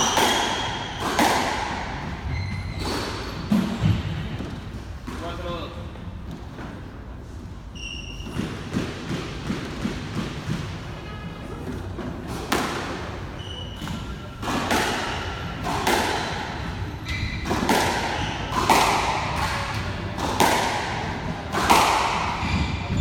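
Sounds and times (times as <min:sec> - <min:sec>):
squash ball cracks off rackets and walls: 0:00.0 - 0:02.0, 0:12.3 - 0:13.1, 0:13.8 - 0:23.0.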